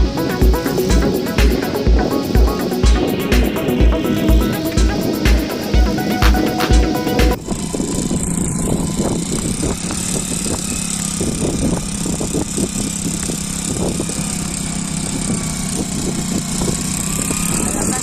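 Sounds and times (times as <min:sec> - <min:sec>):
motorcycle engine under load: 0:00.0 - 0:18.0.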